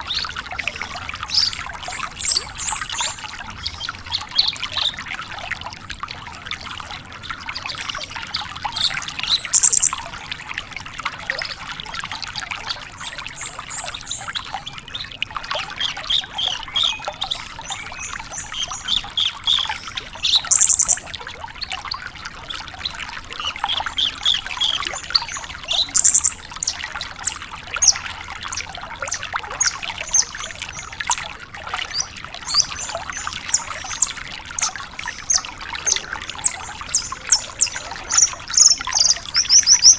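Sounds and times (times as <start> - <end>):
lark singing chirps and trills: 0.0 - 5.0, 7.9 - 10.0, 13.0 - 14.4, 15.8 - 21.1, 22.9 - 31.2, 31.9 - 39.9
trickling water-like hiss: 0.0 - 39.9.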